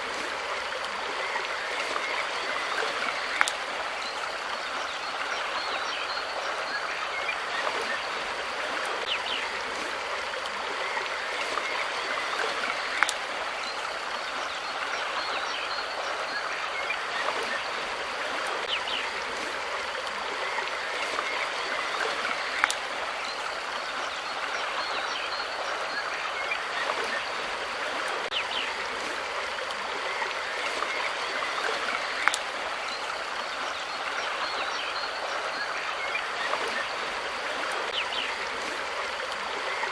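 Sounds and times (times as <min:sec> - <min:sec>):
water rushing over stones: 0:00.0 - 0:39.9
faint ticks: 0:03.4 - 0:03.6, 0:13.0 - 0:13.2, 0:22.6 - 0:22.8, 0:32.2 - 0:32.5.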